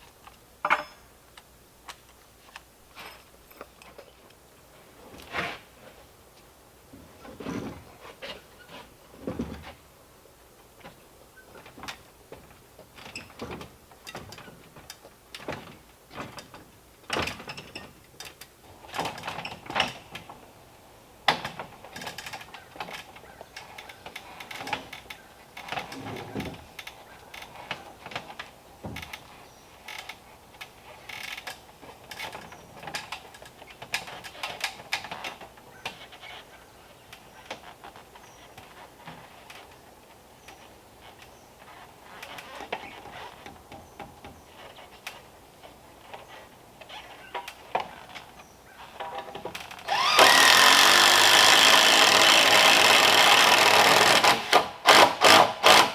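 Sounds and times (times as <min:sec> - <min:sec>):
hand work on timber: 0:49.8 - 0:55.9.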